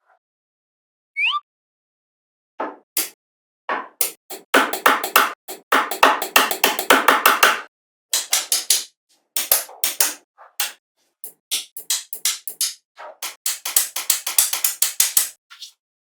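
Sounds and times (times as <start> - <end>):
rapid sharp knocks: 4.0 - 15.4.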